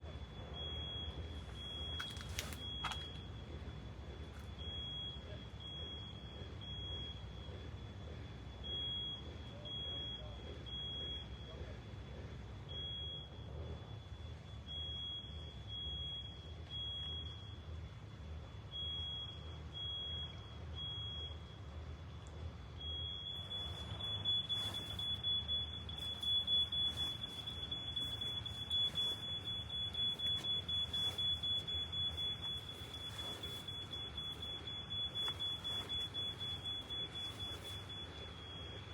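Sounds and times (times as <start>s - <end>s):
electronic alarm high tone: 0.0s - 11.5s, 22.8s - 38.9s
clicks and rustles: 1.9s - 3.3s.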